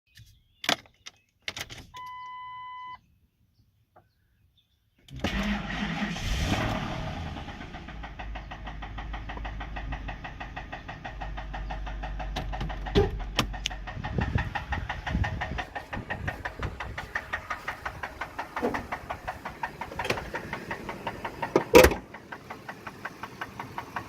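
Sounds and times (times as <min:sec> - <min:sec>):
engine starting and knocking: 0:05.1 - 0:24.0.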